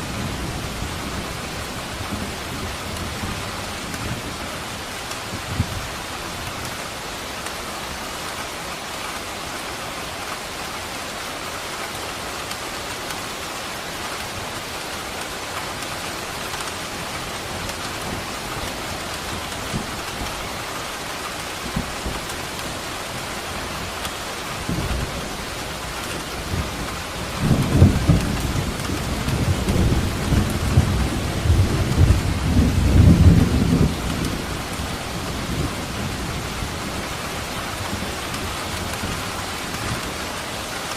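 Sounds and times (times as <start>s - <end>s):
rain falling: 0.0s - 40.9s
thunder rumbling: 21.6s - 40.2s.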